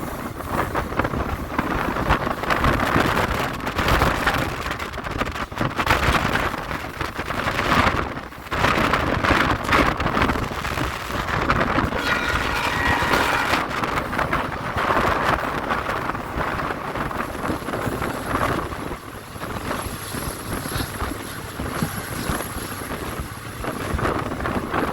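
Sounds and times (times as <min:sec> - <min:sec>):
train coaches rumbling on track: 0:00.0 - 0:24.9
wind gusting across microphone: 0:00.0 - 0:24.9
faint high squeal: 0:12.0 - 0:13.7.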